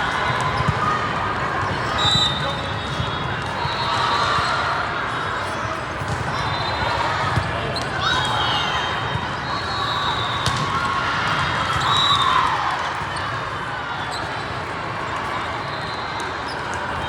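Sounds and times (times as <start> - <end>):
echoing din of people: 0.0 - 17.0
volleyballs struck and bouncing: 10.4 - 11.5.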